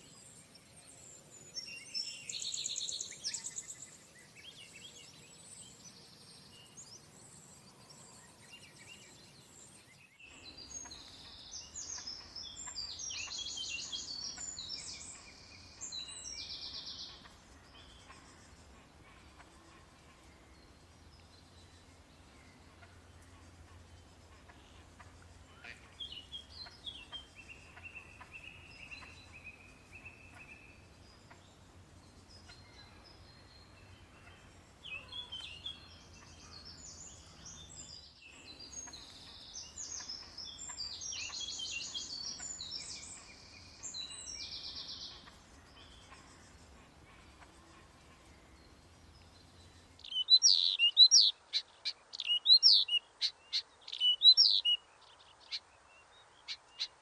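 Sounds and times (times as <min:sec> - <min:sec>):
birds singing and calling: 0:00.0 - 0:17.2, 0:32.3 - 0:55.8.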